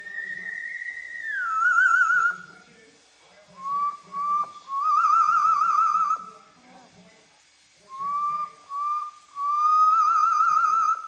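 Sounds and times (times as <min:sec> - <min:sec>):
parrot whistling: 0:00.0 - 0:02.6, 0:03.6 - 0:06.4, 0:07.9 - 0:11.0.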